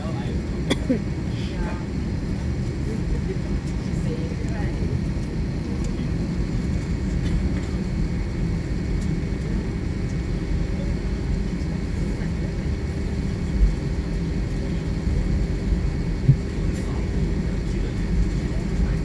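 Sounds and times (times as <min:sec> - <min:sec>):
jet engine cabin rumble: 0:00.0 - 0:19.0.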